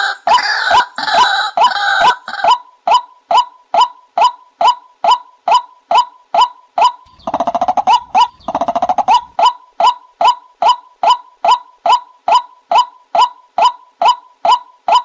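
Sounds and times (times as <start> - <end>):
bird call notes: 7.1 - 9.5
bird chattering runs: 7.1 - 9.6.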